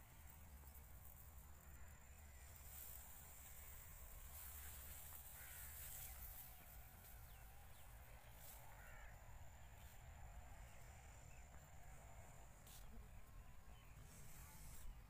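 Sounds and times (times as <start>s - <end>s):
faint bird calls: 4.3s - 6.7s, 8.3s - 10.0s.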